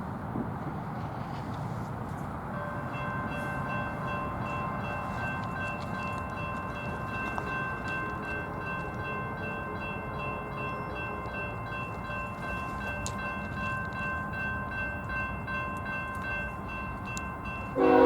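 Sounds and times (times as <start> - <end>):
freight train rumbling: 0.0 - 18.0
high multi-tone horn: 17.8 - 18.0.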